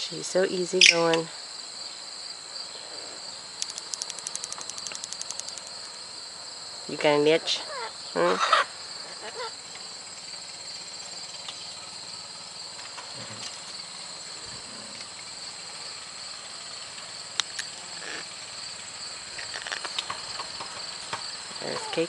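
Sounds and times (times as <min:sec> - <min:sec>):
high-pitched insect chorus: 0:00.0 - 0:22.0
sharp clicks: 0:03.6 - 0:05.7.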